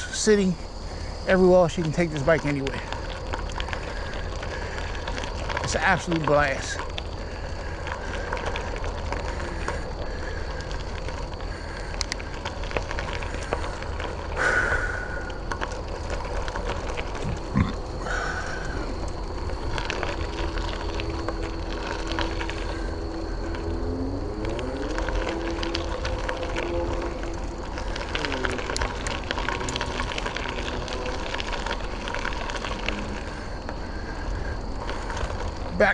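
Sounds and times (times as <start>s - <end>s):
bicycle tyre and wind rumble: 0.0s - 35.9s
hum shifting in pitch: 20.0s - 33.3s.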